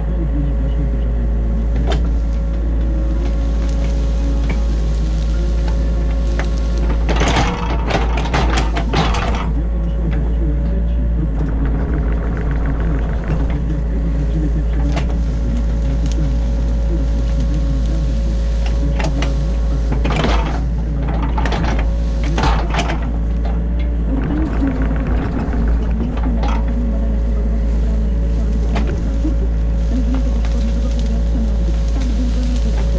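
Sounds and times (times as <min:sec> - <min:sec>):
excavator diesel engine running: 0:00.0 - 0:32.9
rough scraping noise: 0:11.0 - 0:32.9.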